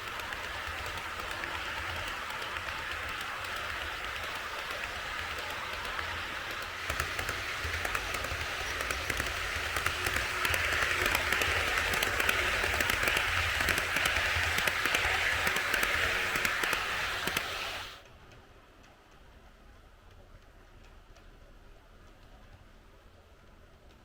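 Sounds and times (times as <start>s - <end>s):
model train wheels rattling: 0.0s - 18.0s.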